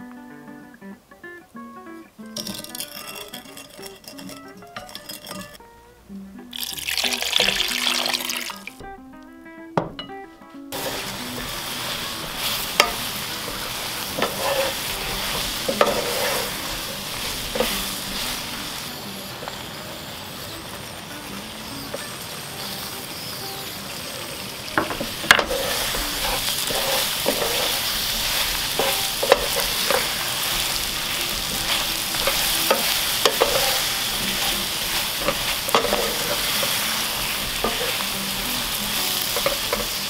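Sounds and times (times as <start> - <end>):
potatoes sizzling in a pan: 6.5 - 9.2, 10.7 - 40.0
spatula knocking and scraping pan: 10.8 - 18.6, 24.8 - 40.0.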